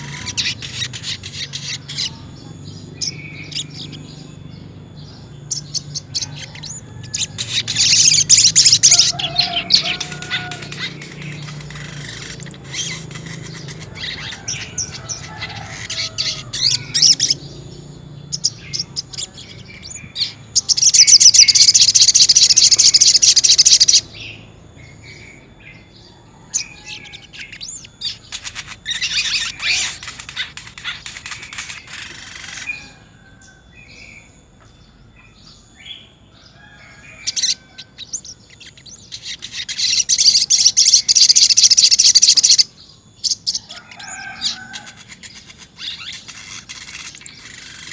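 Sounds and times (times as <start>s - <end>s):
bird rapid trills: 0.0s - 4.1s, 5.4s - 17.7s, 20.0s - 24.0s, 26.6s - 33.1s, 37.2s - 42.7s, 43.5s - 47.9s
bird chirping: 0.0s - 47.9s.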